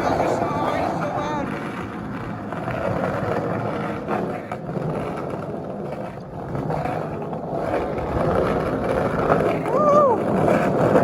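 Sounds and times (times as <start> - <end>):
skateboard clacks: 0.0 - 11.0
skateboard wheels rolling on concrete: 0.0 - 11.0.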